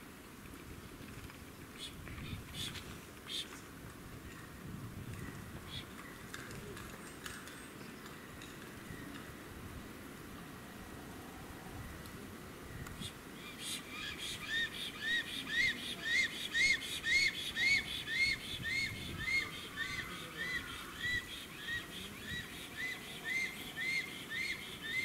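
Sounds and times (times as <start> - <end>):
bird whistling calls: 13.0 - 25.0.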